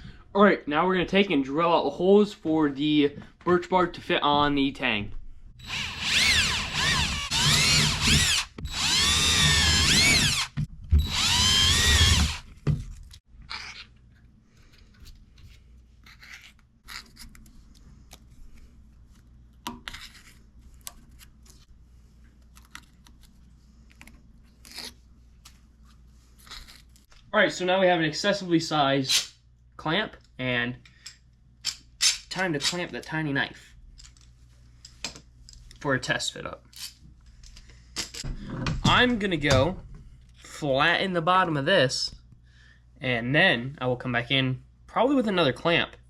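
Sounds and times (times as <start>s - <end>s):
electric drill boring through bark: 5.6s - 12.5s.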